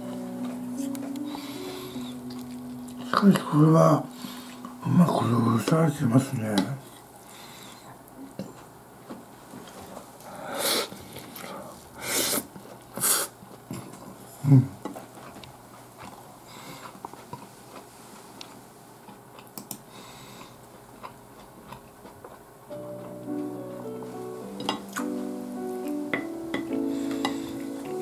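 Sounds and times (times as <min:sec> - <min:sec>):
chewing food: 0:00.0 - 0:05.4, 0:12.3 - 0:25.2
breathy hisses: 0:01.2 - 0:02.3, 0:10.2 - 0:13.4, 0:26.7 - 0:28.0.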